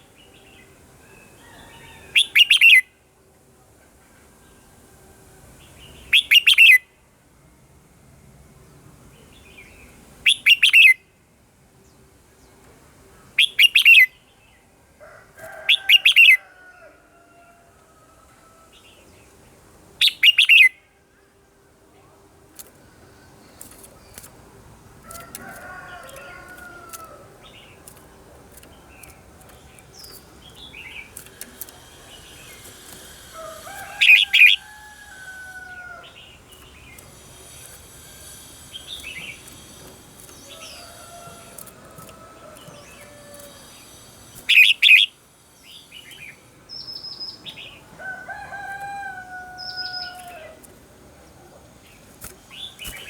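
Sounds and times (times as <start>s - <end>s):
songbirds singing: 0.0s - 3.1s, 5.5s - 7.8s, 8.4s - 16.9s, 18.1s - 53.0s
rooster crowing: 1.1s - 2.2s, 15.0s - 18.8s, 25.0s - 27.4s, 33.2s - 36.2s, 40.4s - 43.8s, 47.9s - 50.7s
bird chirps: 6.0s - 6.8s, 9.6s - 11.0s, 13.4s - 14.2s, 20.0s - 20.8s, 42.6s - 47.8s.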